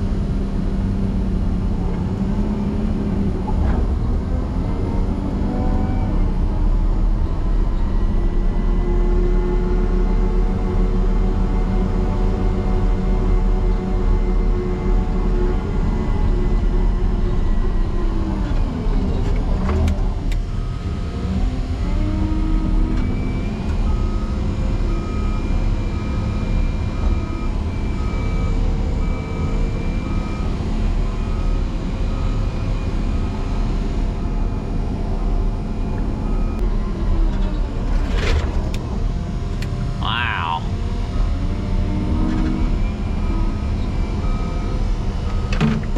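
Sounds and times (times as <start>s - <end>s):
diesel engine working hard: 0.0s - 45.9s.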